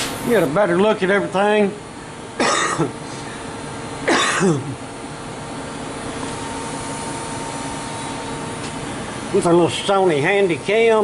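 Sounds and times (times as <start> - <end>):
steady background hum: 0.0 - 11.0
person coughing: 2.4 - 3.0, 4.0 - 4.8.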